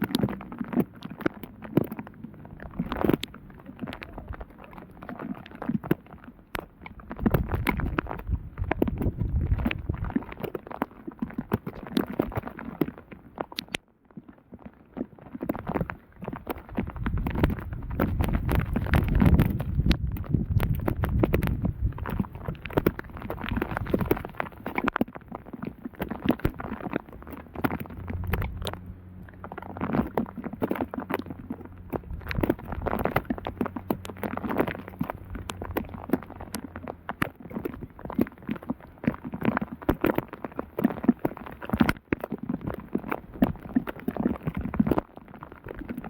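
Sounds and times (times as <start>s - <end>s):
raindrops clicking and tapping: 0.0s - 46.0s
low rumble: 26.7s - 39.8s.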